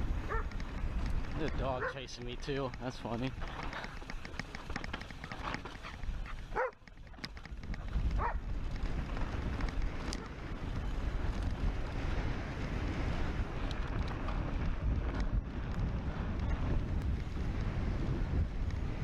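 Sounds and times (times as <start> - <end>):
wind over microphone: 0.0 - 19.0
dog barking: 1.8 - 2.0, 6.5 - 6.8, 8.2 - 8.4.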